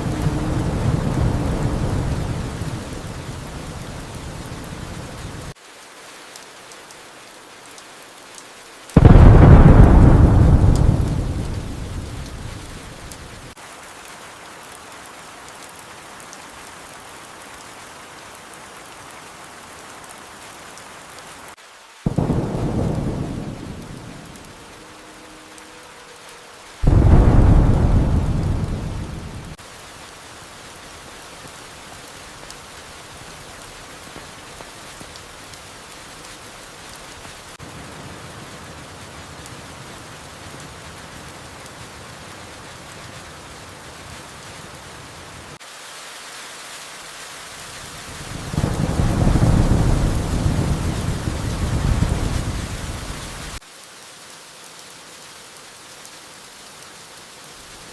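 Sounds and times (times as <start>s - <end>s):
thunder rolling: 0.0s - 5.2s, 9.0s - 13.6s, 22.1s - 24.8s, 26.8s - 29.6s, 48.3s - 53.6s
steady rain: 0.0s - 57.9s.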